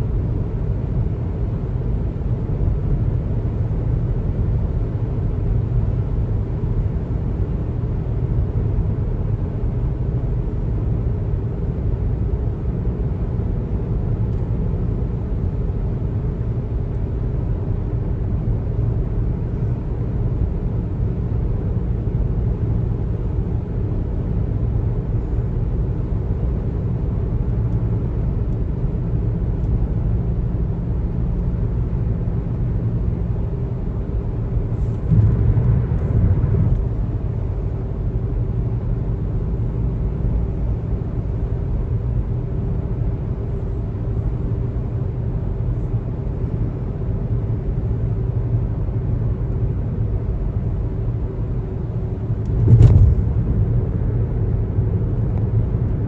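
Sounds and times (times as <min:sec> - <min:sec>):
car road noise: 0:17.4 - 0:45.0, 0:47.6 - 0:56.0.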